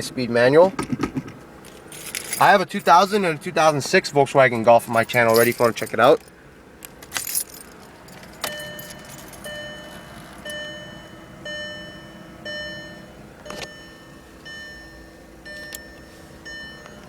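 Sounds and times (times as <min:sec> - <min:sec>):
dashboard warning chime: 0:08.3 - 0:17.0.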